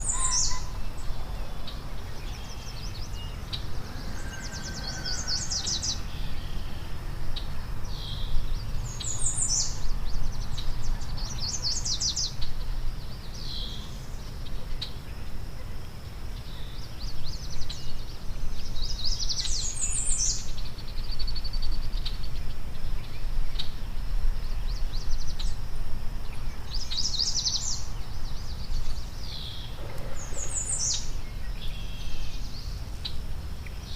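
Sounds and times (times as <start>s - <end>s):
songbird trilling: 0.0s - 6.8s, 26.6s - 33.9s.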